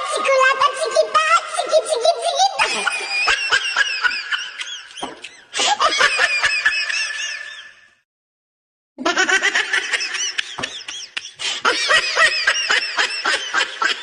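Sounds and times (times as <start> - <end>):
people laughing: 2.4 - 7.9, 9.0 - 14.0.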